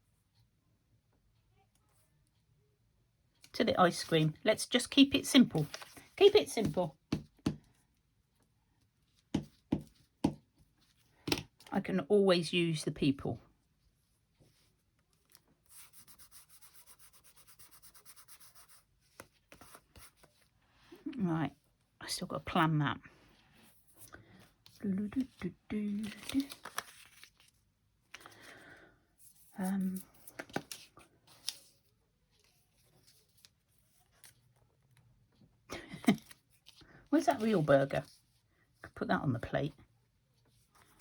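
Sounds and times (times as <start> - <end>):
paper rustling: 5.4 - 6.7, 23.6 - 28.5, 29.2 - 34.6.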